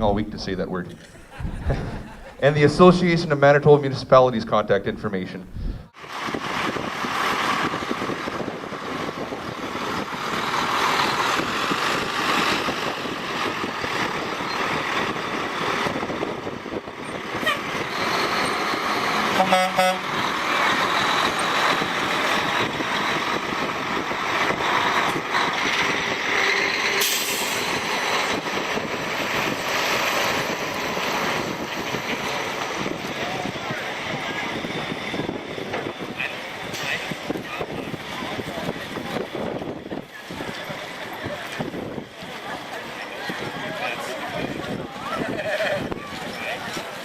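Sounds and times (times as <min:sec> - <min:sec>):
rushing background noise: 0:00.0 - 0:47.0
vehicle horn toot: 0:19.3 - 0:20.1.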